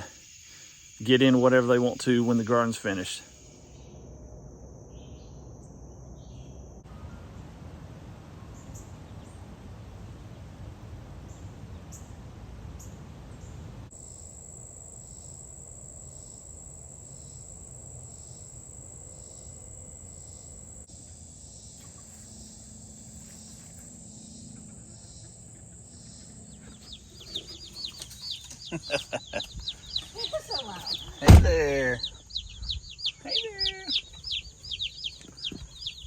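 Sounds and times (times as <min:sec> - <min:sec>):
crickets trilling: 0:00.0 - 0:07.0, 0:12.8 - 0:36.0
low rumbling background noise: 0:03.2 - 0:13.9.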